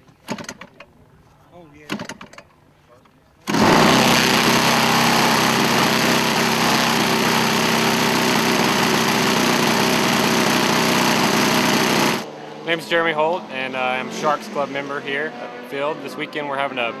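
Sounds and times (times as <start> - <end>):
model airplane engine running: 3.5 - 12.3.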